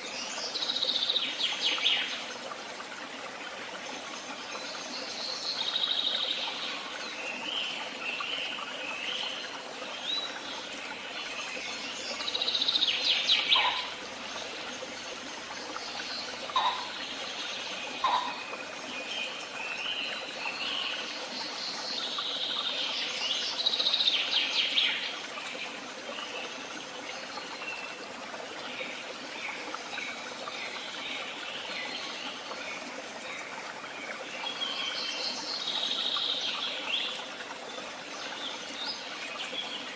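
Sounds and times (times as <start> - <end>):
songbirds singing: 4.0 - 39.9
loud rapid bird trills: 13.4 - 14.0, 16.5 - 17.0.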